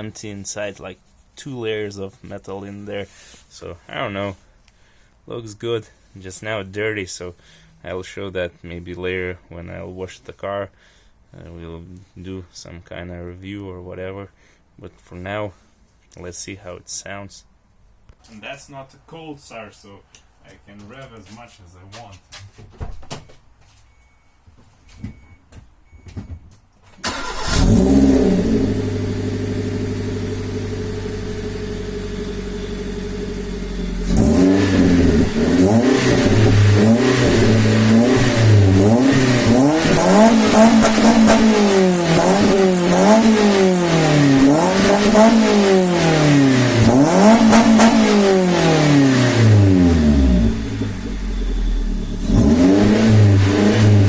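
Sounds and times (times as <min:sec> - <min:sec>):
car engine idling and revving: 0:27.1 - 0:54.0.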